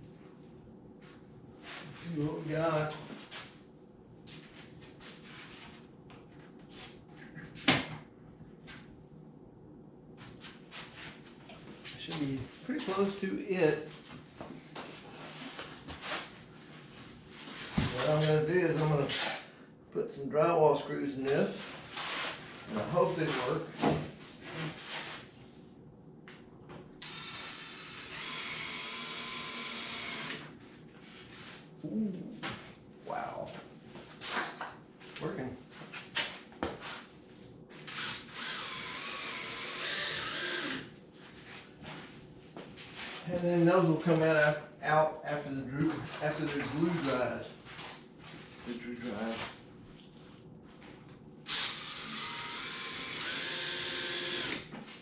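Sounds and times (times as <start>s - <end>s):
power drill whining: 27.0s - 30.5s, 37.9s - 40.9s, 51.5s - 54.7s.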